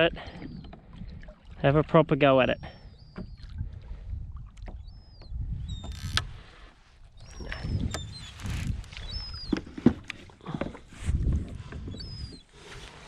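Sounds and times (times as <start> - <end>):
water sloshing against kayak hull: 0.0 - 13.0
short high squeaks: 5.7 - 6.2.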